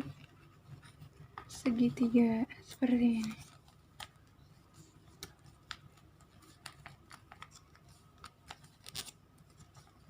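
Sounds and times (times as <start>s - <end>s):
paper being folded and creased: 2.6s - 10.0s.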